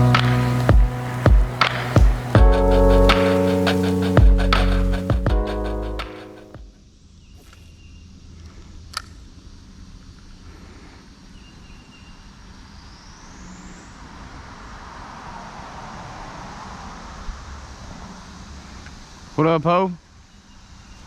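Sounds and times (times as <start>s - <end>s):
rushing hiss: 0.0s - 5.2s
low rumble: 0.0s - 6.7s.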